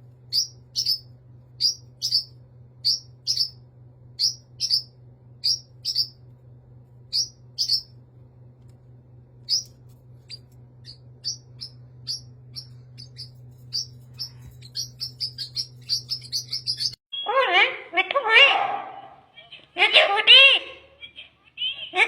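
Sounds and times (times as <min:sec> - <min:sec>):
bird chirping: 0:00.2 - 0:06.2, 0:07.1 - 0:08.0, 0:09.4 - 0:17.4.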